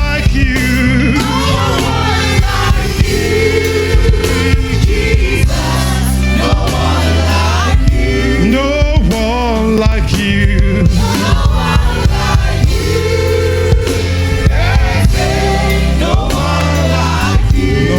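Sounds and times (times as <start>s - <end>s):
bass: 0.0s - 17.9s
drums: 0.0s - 17.9s
keyboard: 0.0s - 17.9s
singers with vibrato: 0.5s - 9.3s.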